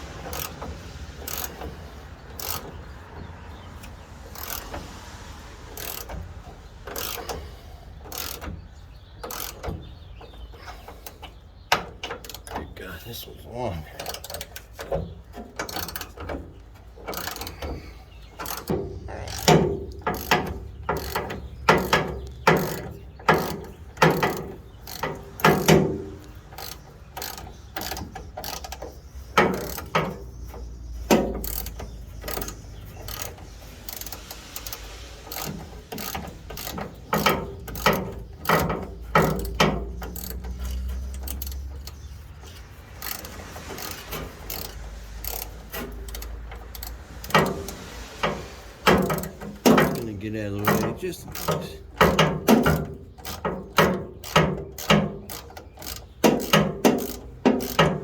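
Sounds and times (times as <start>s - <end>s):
hand ratchet clicking: 0.0s - 2.8s, 3.8s - 8.6s, 9.2s - 9.8s, 14.0s - 58.0s.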